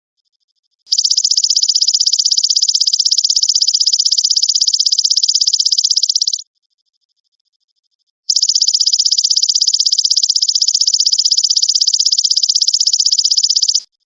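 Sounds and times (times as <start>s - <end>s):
faint insect ticking: 0.9s - 6.4s, 8.3s - 13.9s
grasshopper trilling: 0.9s - 6.4s, 8.3s - 13.8s.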